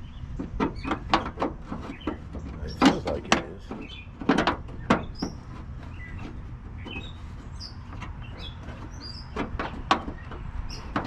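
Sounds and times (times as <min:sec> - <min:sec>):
scraping on plastic: 0:00.3 - 0:11.0.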